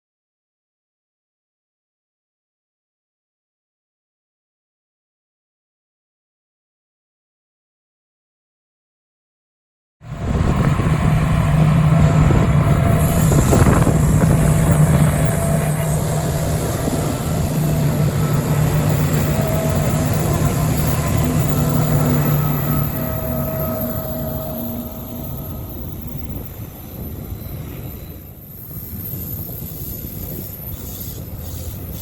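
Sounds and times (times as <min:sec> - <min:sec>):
train running: 0:10.0 - 0:32.0.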